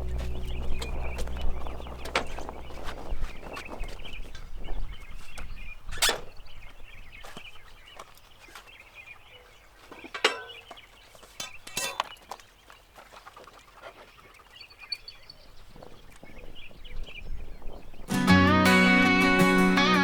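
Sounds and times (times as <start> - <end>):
bird calls: 0.0 - 20.0.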